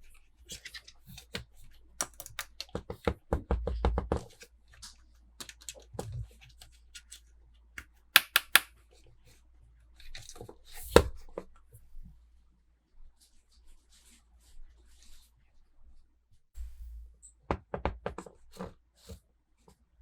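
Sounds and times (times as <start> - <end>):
sharp clicks: 8.2 - 8.7.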